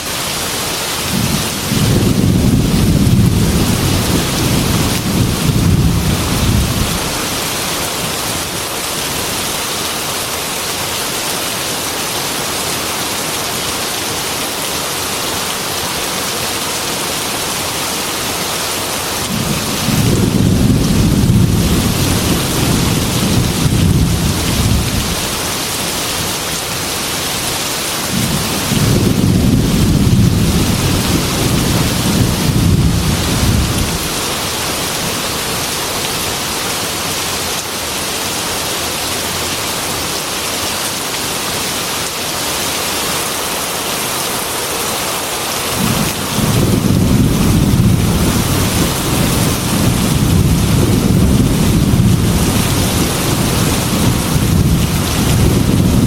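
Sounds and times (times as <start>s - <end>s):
heavy rain on a metal roof: 0.0s - 56.0s
thunder rolling: 1.1s - 7.3s, 19.3s - 25.6s, 28.1s - 34.1s, 45.8s - 56.0s.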